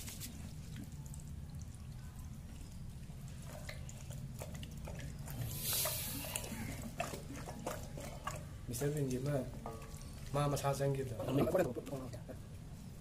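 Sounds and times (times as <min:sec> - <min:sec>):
wet squelches of kneading: 0:00.0 - 0:13.0.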